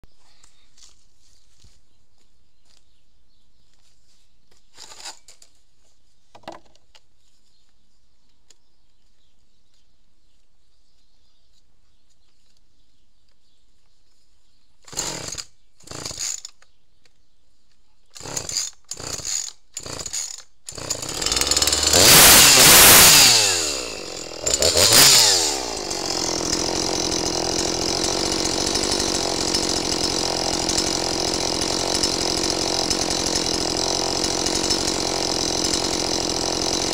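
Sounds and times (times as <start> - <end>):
chainsaw engine revving and idling: 14.8 - 16.5, 18.1 - 36.9
starter cord rasps: 14.8 - 16.8, 18.1 - 36.9.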